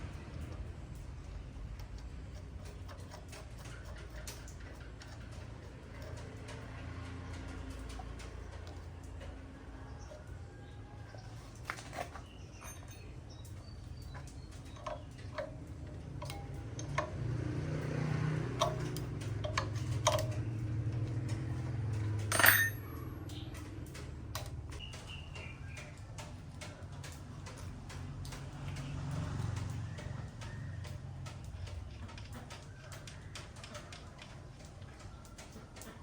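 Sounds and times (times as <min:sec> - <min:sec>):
metal tools clinking: 0:11.6 - 0:17.2, 0:18.5 - 0:21.1, 0:21.9 - 0:23.2.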